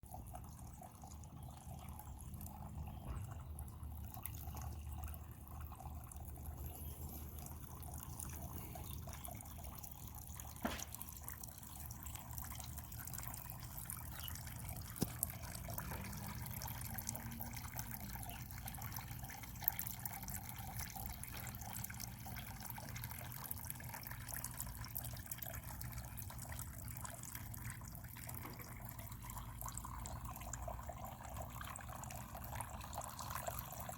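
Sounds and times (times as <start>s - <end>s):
water drips clicking: 0.1s - 33.9s
rain patter: 10.6s - 24.7s.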